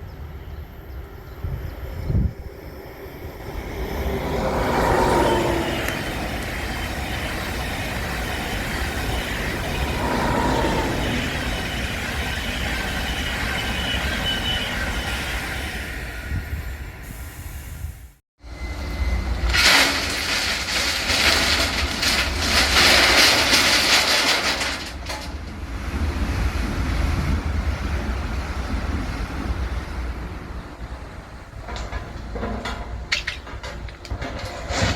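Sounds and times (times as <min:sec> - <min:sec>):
train wheels clattering over rails: 0:31.5 - 0:34.9.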